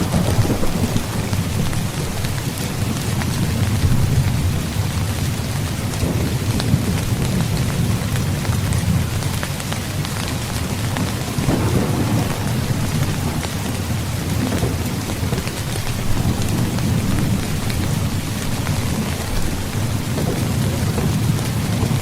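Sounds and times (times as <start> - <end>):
heavy rain falling: 0.0 - 22.0
low rolling thunder: 0.0 - 22.0.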